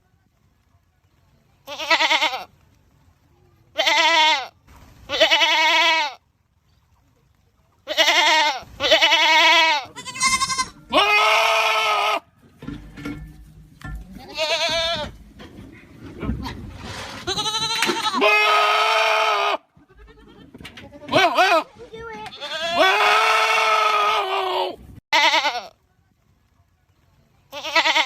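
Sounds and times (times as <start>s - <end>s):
goats bleating loudly: 1.7s - 2.5s, 3.8s - 4.5s, 5.1s - 6.2s, 7.9s - 12.3s, 14.2s - 15.2s, 17.2s - 25.7s, 27.5s - 28.0s.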